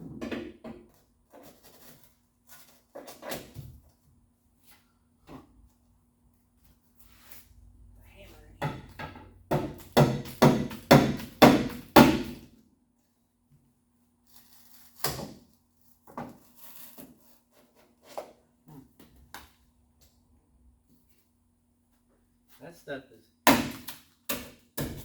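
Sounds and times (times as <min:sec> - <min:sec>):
hammer striking chisel: 0:08.6 - 0:12.4.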